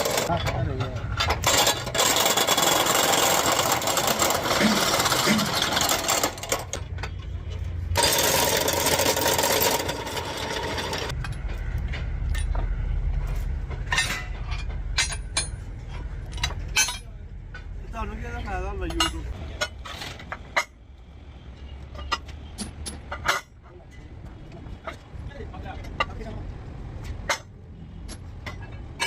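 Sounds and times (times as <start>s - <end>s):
loud mechanical noise with whine: 0.0s - 29.0s
metallic clinks and knocks: 3.6s - 17.7s, 21.6s - 24.1s
low engine rumble: 3.6s - 29.0s.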